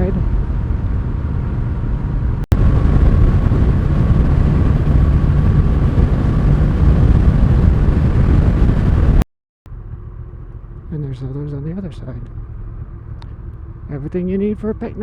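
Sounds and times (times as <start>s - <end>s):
wind rush on microphone: 0.0s - 9.2s
low motorcycle engine: 0.0s - 15.0s
road noise: 0.0s - 15.0s.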